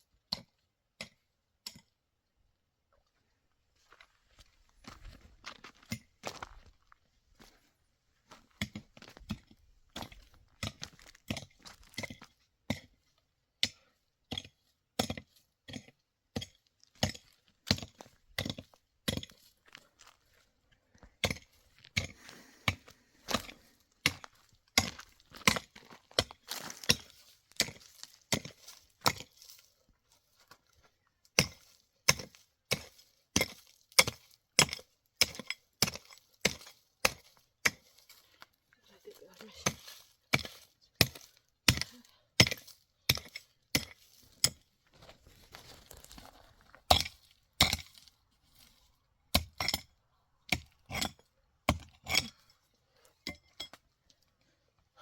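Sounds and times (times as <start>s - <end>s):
chopping wood: 31.4s - 37.9s, 39.6s - 44.6s, 46.9s - 48.0s.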